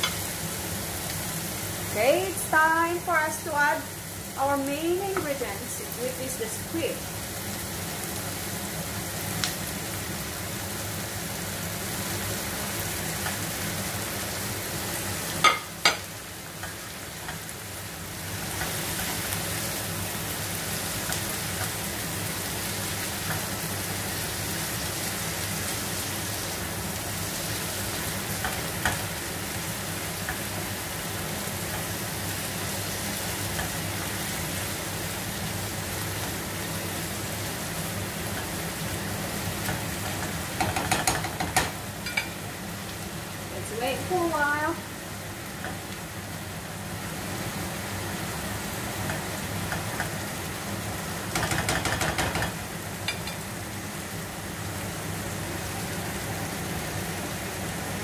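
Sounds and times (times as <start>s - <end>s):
squid sizzling in a frying pan: 0.0s - 58.0s.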